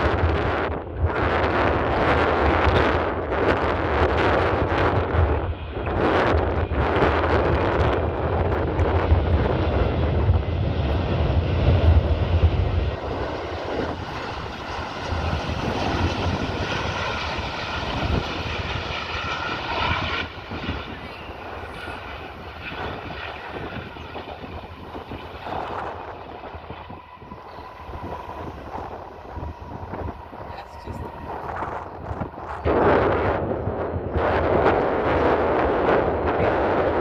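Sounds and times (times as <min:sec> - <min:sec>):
jet engine whine: 0:00.0 - 0:37.0
jet engines rumbling: 0:00.0 - 0:37.0.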